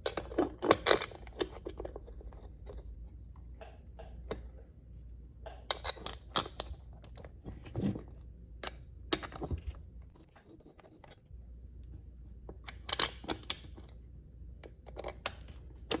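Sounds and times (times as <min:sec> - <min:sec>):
metal parts and tools clinking: 0:00.0 - 0:02.9, 0:05.6 - 0:11.2, 0:12.5 - 0:14.0, 0:14.6 - 0:16.0.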